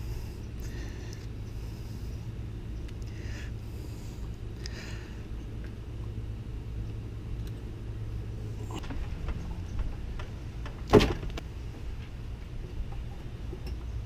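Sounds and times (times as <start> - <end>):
low hum: 0.0 - 14.0
loud metal clunk: 10.6 - 11.4.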